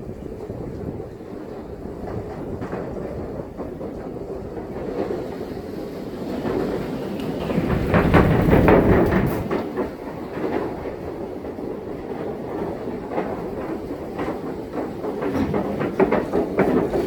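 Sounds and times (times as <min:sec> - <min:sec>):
wheels rattling over planks: 0:00.7 - 0:17.0.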